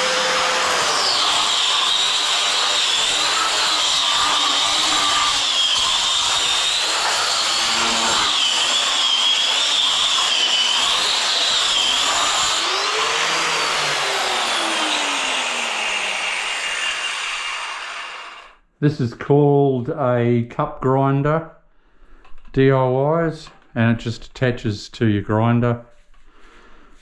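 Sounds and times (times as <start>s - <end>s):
angle grinder grinding floor: 0.0s - 18.6s.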